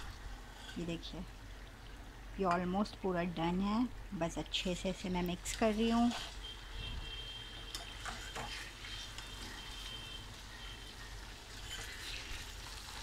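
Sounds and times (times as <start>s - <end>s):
curry sizzling in a pan: 5.4s - 6.8s, 7.4s - 13.0s.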